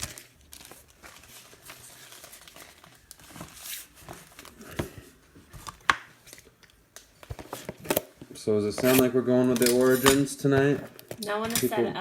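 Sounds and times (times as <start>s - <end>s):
foil wrappers crinkling: 0.0s - 5.0s.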